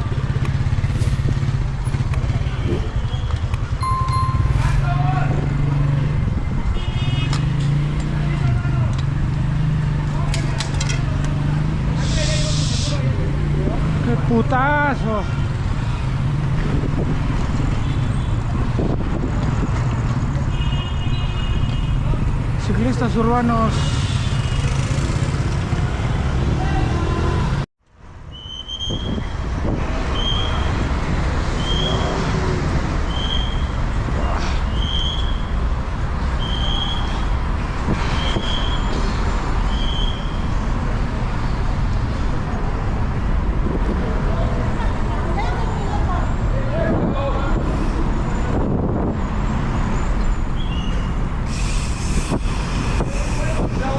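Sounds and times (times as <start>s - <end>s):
road noise from traffic: 0.0s - 53.9s
short high beep: 3.8s - 5.0s
thin high steady tone: 3.8s - 5.0s
wind on microphone: 18.5s - 20.4s, 46.8s - 49.5s, 51.5s - 53.9s.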